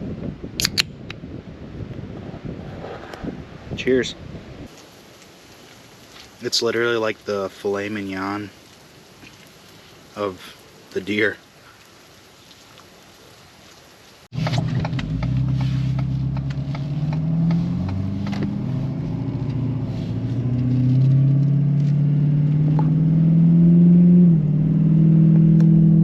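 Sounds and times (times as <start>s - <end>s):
vehicle engine accelerating: 14.4s - 26.0s.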